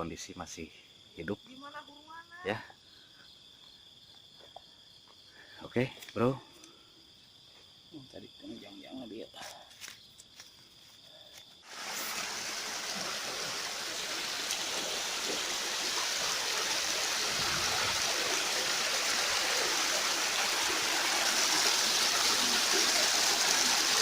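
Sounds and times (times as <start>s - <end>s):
river water rushing: 11.7s - 24.0s.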